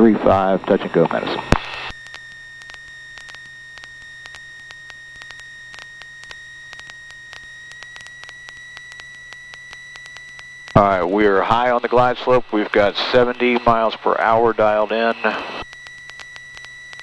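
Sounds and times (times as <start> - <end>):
faint irregular clicks: 0.6 - 14.1, 14.9 - 17.0
low hum: 10.0 - 16.0.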